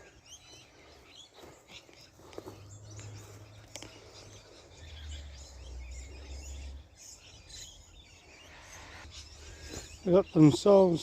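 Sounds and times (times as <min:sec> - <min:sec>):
faint bird calls and chirps: 0:00.0 - 0:11.0
outdoor background noise: 0:00.0 - 0:11.0.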